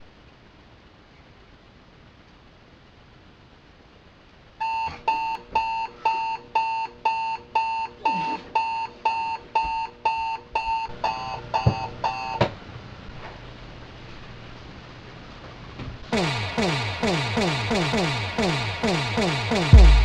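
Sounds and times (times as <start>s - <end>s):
alarm clock beeping: 16.2s - 20.0s.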